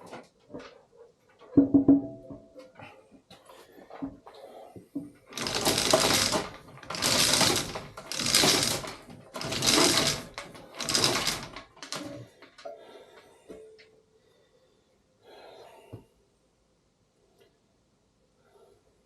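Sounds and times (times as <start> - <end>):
power tool rattling: 5.3 - 12.3.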